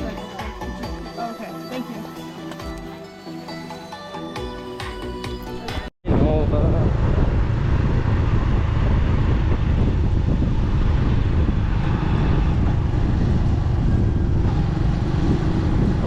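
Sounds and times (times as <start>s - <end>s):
road noise: 5.4s - 16.0s
wind rumbling over microphone: 6.0s - 16.0s
motorbike engine: 6.3s - 16.0s.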